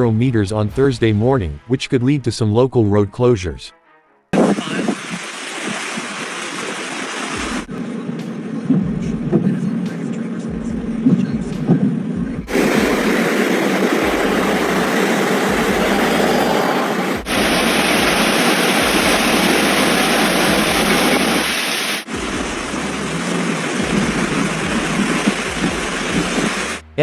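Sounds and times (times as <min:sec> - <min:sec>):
heavy rain: 0:04.4 - 0:07.7, 0:12.5 - 0:26.8
running floodwater: 0:04.4 - 0:08.2, 0:12.5 - 0:26.8.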